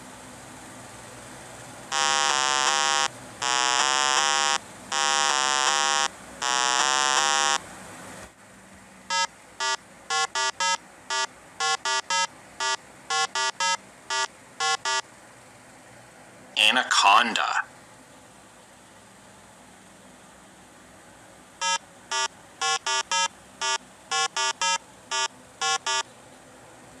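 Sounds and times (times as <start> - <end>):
warbling electronic buzzer tones: 1.9 - 7.6, 9.1 - 15.0, 21.6 - 26.1
short electronic beeps: 9.1 - 15.0, 21.6 - 26.1.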